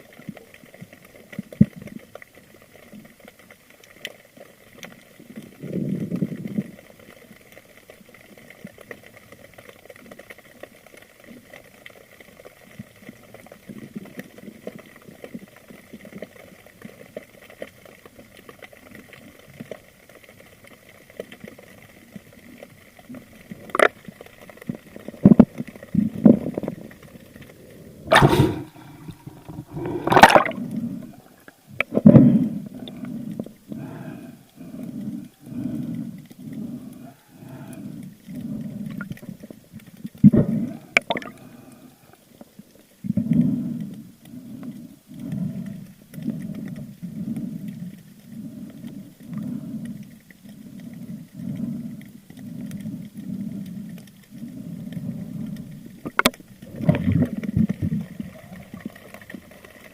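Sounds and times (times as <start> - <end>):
faint underwater crackle: 0.0 - 59.9
water gurgling: 0.0 - 59.9
whooshes of water and bubbles: 28.0 - 32.9, 40.3 - 41.5.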